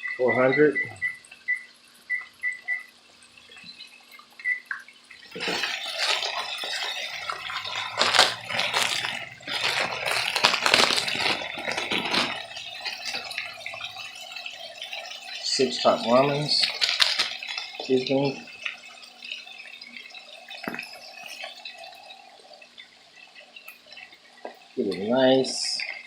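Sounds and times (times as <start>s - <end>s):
loud crackly splashy noise: 5.3s - 13.5s, 16.4s - 17.6s.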